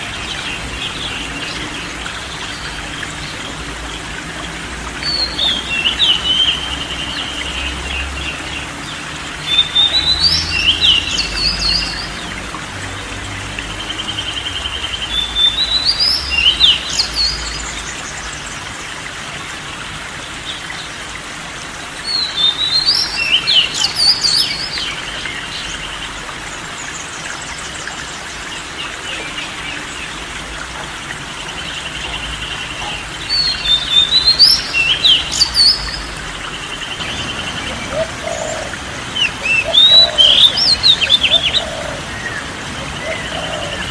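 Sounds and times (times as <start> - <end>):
bird song chirps and whistles: 39.2 - 41.7.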